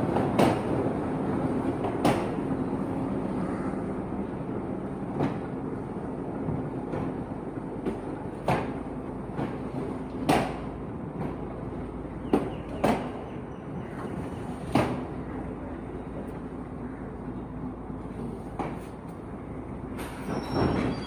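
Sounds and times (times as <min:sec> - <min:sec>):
train carriages rumbling: 0:00.0 - 0:21.0
wheels and couplings clanking: 0:04.2 - 0:21.0.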